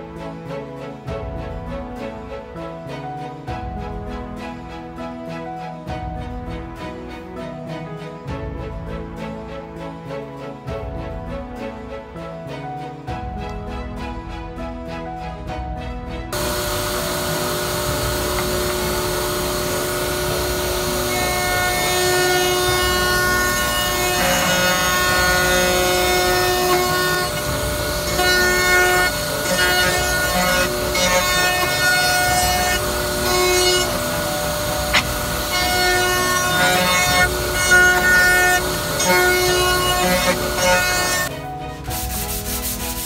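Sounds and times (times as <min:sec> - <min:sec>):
cutter rasping in wood: 0:16.4 - 0:41.3
router spindle whine: 0:16.4 - 0:41.3.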